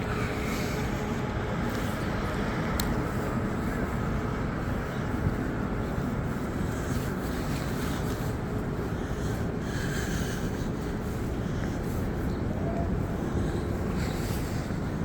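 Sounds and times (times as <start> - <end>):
wind noise on microphone: 0.0 - 9.7.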